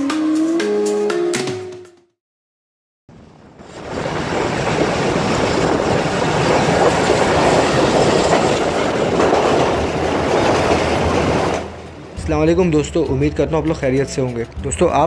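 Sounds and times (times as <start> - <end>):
train wheels running on rail: 3.7 - 12.3.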